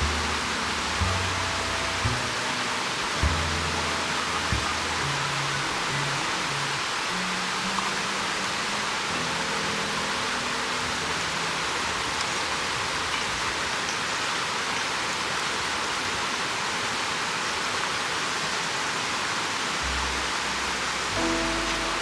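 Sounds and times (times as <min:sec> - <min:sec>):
background music with held notes: 0:00.0 - 0:12.4, 0:19.8 - 0:22.0
steady hiss: 0:00.0 - 0:22.0.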